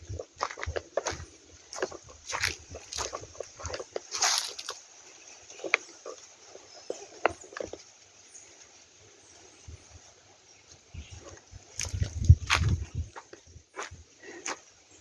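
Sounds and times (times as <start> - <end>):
footsteps on a path: 0.0 - 7.9, 11.0 - 14.8
faint outdoor ambience: 0.0 - 15.0.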